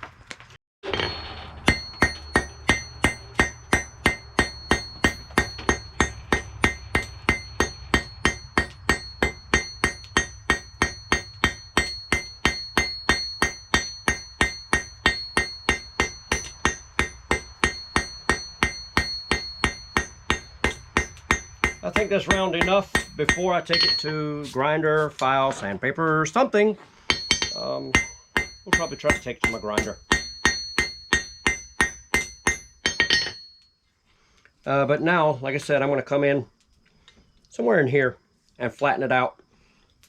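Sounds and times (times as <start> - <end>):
hammer striking metal on anvil: 0.8 - 24.4, 27.1 - 33.6.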